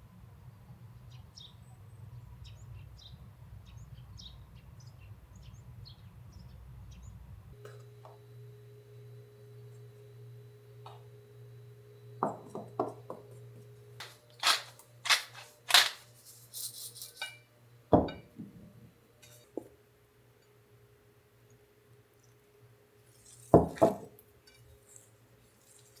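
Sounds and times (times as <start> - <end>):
steady low hum: 6.6 - 26.0
tableware knocks and clinks: 18.0 - 18.4, 23.6 - 24.1.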